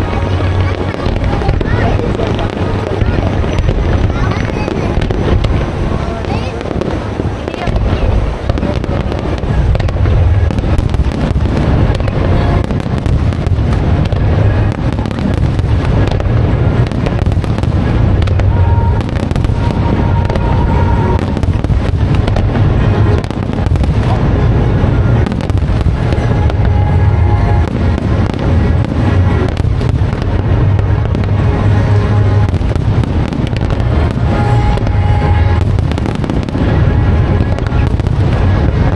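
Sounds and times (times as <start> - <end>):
deep rumble: 0.0 - 38.9
firework bursts and crackling: 0.0 - 38.9.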